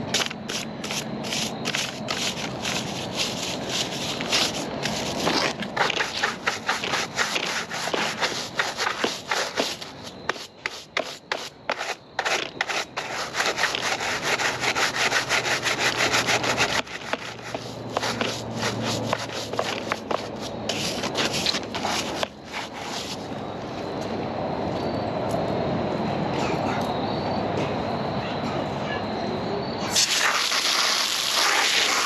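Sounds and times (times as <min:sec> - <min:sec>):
rubbing and scraping on surface: 0:00.0 - 0:23.3.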